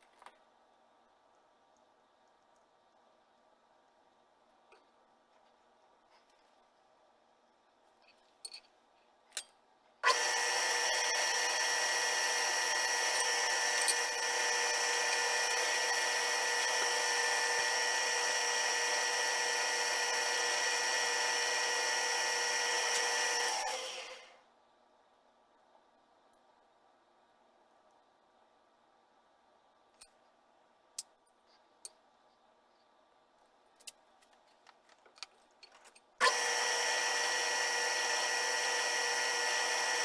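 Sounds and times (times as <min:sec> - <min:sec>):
motor spinning down: 0:10.0 - 0:24.3, 0:36.2 - 0:40.0
power tool motor whine: 0:10.0 - 0:24.4, 0:36.2 - 0:40.0.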